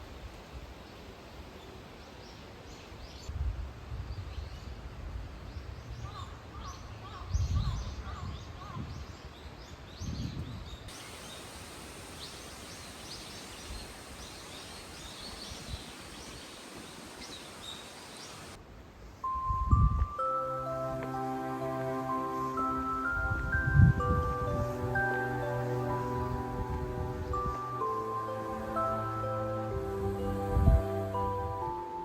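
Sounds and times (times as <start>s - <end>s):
wind gusts on microphone: 3.1s - 20.4s, 22.6s - 31.8s
small birds chirping: 6.0s - 18.6s.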